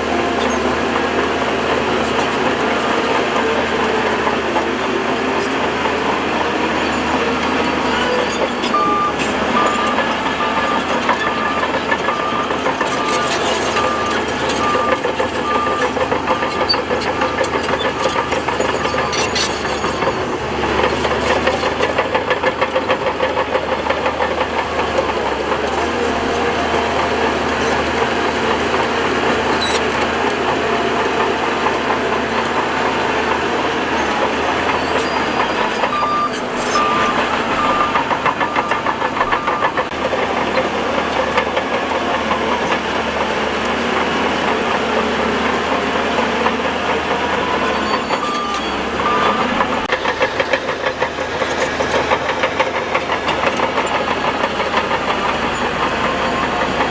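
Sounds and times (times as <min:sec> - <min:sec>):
bulldozer diesel engine under load: 0:00.0 - 0:56.9
reversing alarm beeping: 0:06.7 - 0:21.8, 0:28.2 - 0:40.0, 0:45.0 - 0:49.9.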